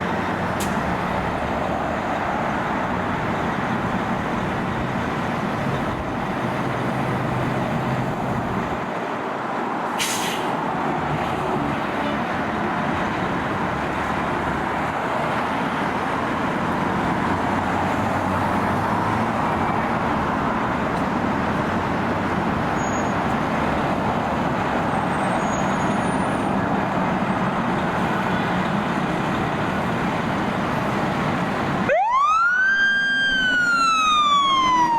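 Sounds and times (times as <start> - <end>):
fire engine rumble: 0.0 - 34.9
road noise: 0.0 - 34.9
siren: 31.8 - 34.9.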